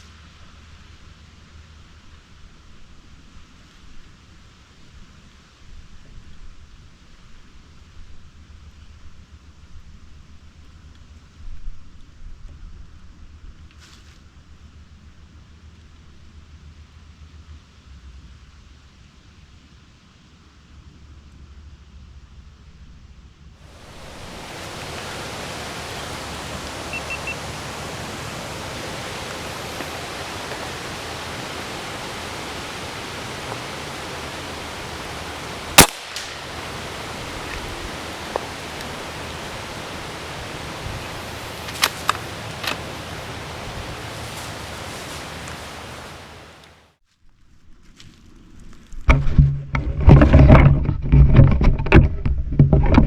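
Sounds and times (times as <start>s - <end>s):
wind on microphone: 23.7s - 46.8s
faint clicks: 23.8s - 46.8s
loud gunshot: 35.7s - 36.6s.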